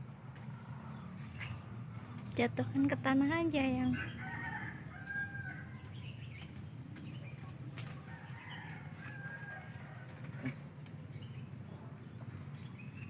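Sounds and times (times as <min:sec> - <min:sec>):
leaves and twigs rustling and snapping: 0:05.0 - 0:05.2, 0:05.8 - 0:11.0.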